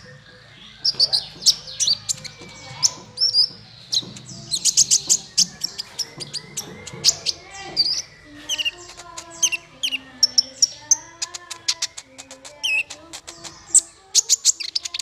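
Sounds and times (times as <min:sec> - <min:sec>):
songbirds chipping and trilling: 0:00.0 - 0:15.0.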